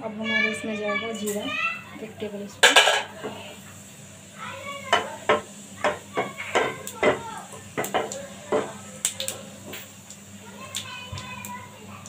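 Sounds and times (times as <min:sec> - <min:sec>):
seeds popping in hot oil: 0:04.8 - 0:11.7.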